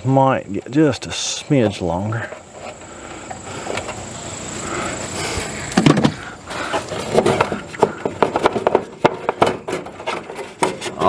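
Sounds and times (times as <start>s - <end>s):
faint high whine: 0.0s - 8.0s
hands rustling and scraping: 1.7s - 11.0s.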